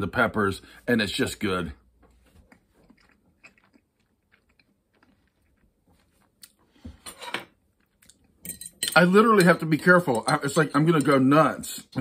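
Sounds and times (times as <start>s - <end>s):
chewing and lip smacking: 2.4s - 6.6s.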